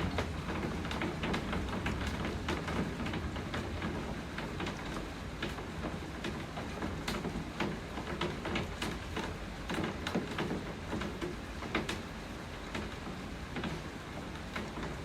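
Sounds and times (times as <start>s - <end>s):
sharp taps of raindrops: 0.0s - 15.0s
steady rain falling: 0.0s - 15.0s.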